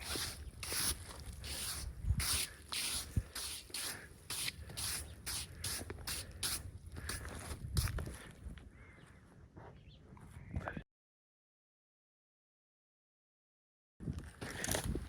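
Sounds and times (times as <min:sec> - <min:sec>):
hand scraping wood: 0:00.0 - 0:08.0.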